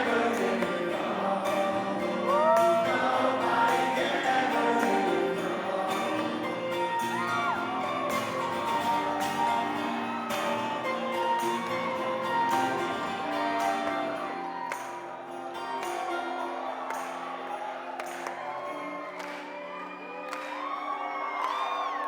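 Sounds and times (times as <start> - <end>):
live acoustic band playing: 0.0 - 14.9
crowd voices and cheers: 0.0 - 22.0.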